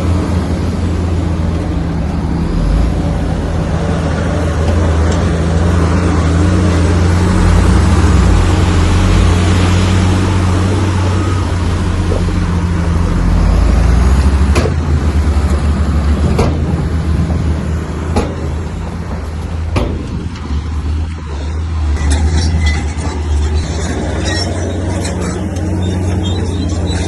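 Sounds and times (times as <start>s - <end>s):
bulldozer diesel engine running: 0.0s - 27.0s
sharp metallic knocks: 14.4s - 15.0s, 18.1s - 20.5s.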